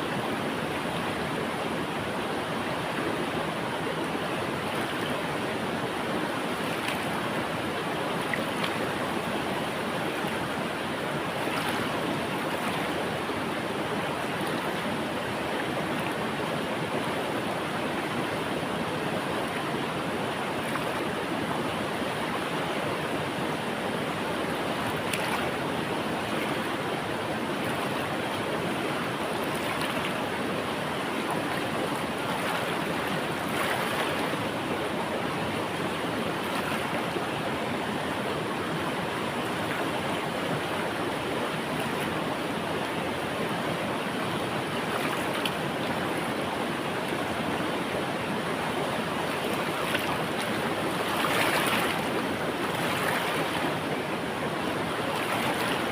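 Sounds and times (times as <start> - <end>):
river water rushing: 0.0 - 55.9
small water splashes: 4.6 - 17.5, 20.5 - 21.1, 24.0 - 37.4, 41.6 - 42.2, 43.7 - 46.4, 48.3 - 55.9.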